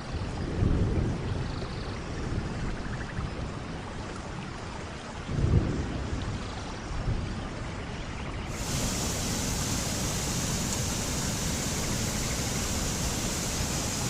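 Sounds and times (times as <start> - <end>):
deep gusty rumbles: 8.5 - 14.0
falling water rushing: 8.5 - 14.0.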